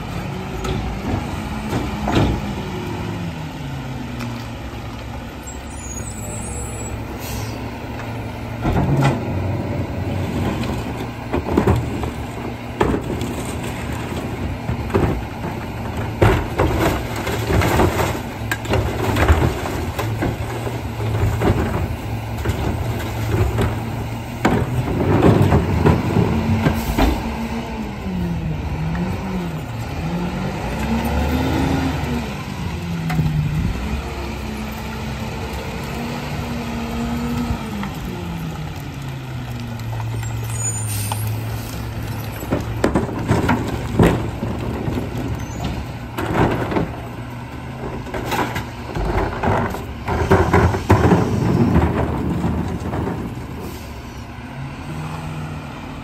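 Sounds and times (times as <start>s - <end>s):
garbage truck engine: 0.0s - 56.0s
bins knocking and clattering: 8.6s - 27.4s, 41.9s - 53.8s.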